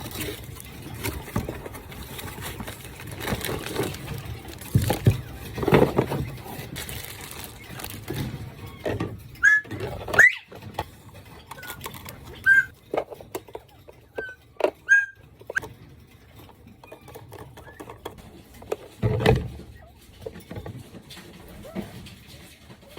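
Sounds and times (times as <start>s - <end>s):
birds tapping and scratching: 0.0s - 22.9s
quail chirping: 12.4s - 12.7s, 14.2s - 15.2s.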